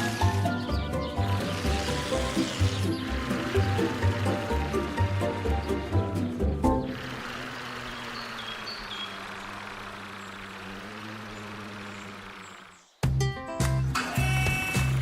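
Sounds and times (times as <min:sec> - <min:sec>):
music: 0:00.0 - 0:07.0, 0:13.0 - 0:15.0
vehicle engine humming: 0:00.0 - 0:15.0.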